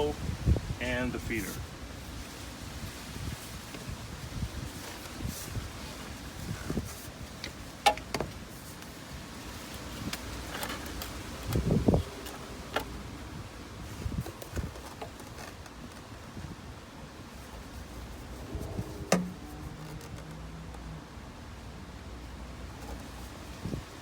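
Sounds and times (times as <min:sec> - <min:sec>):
faint rustling: 0:01.3 - 0:20.9
plastic pipe clicks: 0:07.4 - 0:08.3, 0:19.1 - 0:20.4.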